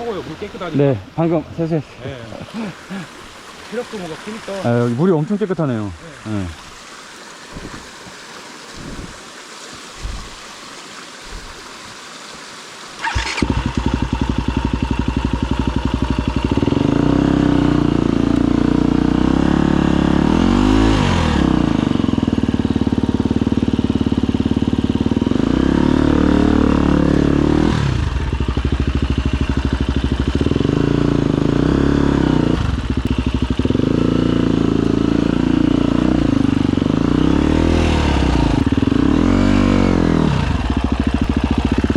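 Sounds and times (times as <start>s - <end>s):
motorcycle engine starting and revving: 13.0s - 41.9s.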